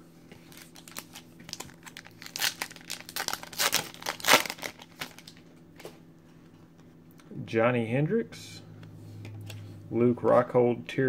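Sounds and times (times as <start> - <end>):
wrapper tearing and crinkling: 0.4 - 5.4.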